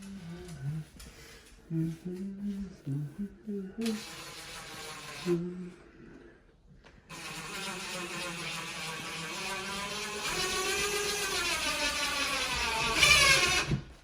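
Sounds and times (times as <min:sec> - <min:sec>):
electric drill whining: 0:03.9 - 0:05.4, 0:07.1 - 0:14.0.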